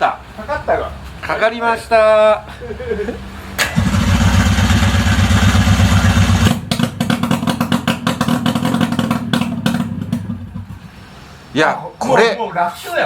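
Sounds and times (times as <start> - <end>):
two-stroke engine running: 3.6 - 11.0.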